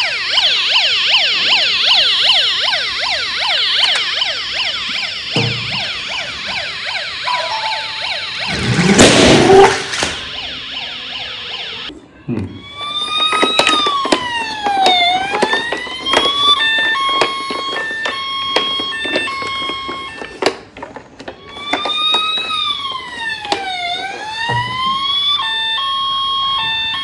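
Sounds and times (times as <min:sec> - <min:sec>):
toy siren wailing: 0:00.0 - 0:11.9, 0:12.5 - 0:27.0.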